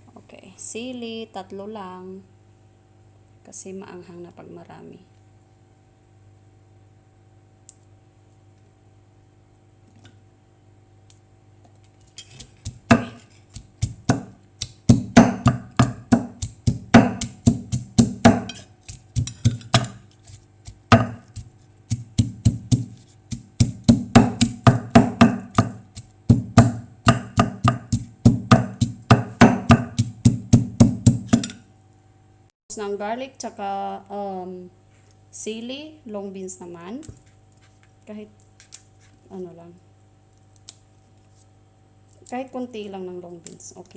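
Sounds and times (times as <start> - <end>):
pestle pounding in mortar: 12.4 - 31.5.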